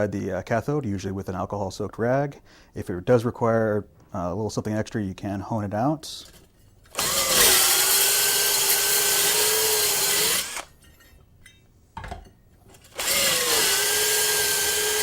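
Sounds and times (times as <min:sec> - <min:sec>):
power drill whining: 0:06.9 - 0:10.8, 0:12.7 - 0:15.0.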